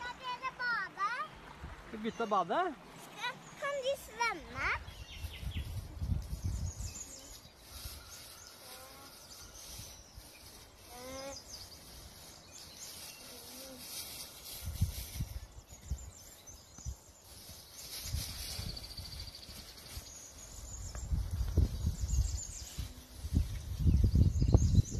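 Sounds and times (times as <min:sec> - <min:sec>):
rising bird calls: 0:03.0 - 0:14.4
wind gusts on microphone: 0:03.2 - 0:12.7, 0:13.4 - 0:24.9.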